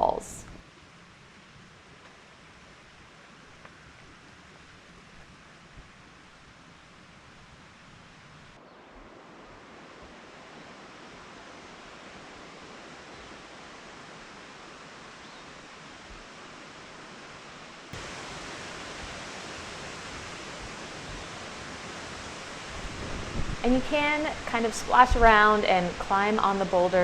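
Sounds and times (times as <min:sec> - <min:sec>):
waterfall rushing: 0:09.1 - 0:27.0.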